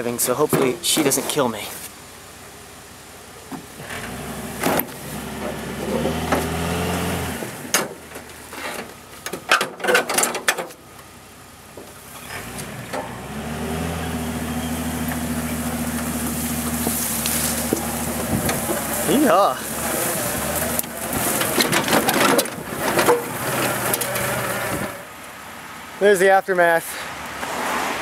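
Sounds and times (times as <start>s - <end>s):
car engine running: 1.5s - 9.5s, 10.7s - 25.7s
knocks and clanks: 7.4s - 10.8s, 20.4s - 25.0s.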